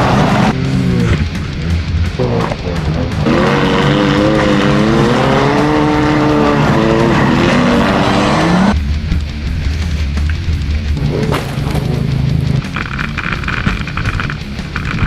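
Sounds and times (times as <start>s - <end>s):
car engine revving hard: 0.0s - 8.8s
tire and scraping noise: 0.0s - 15.0s.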